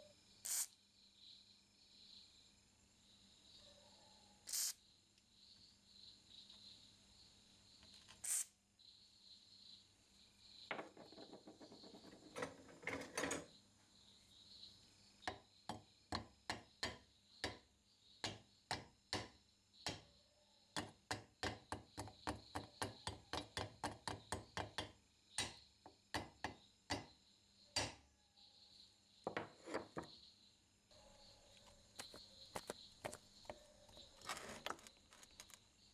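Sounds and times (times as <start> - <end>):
spray can hiss: 0.5 - 0.7, 4.5 - 4.7, 8.2 - 8.4
screwdriver scraping rusty iron: 32.0 - 35.6.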